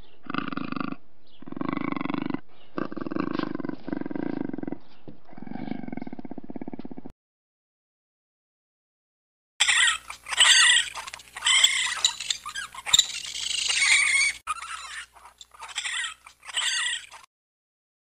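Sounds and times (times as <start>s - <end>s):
animal high-pitched calls: 9.6s - 17.3s.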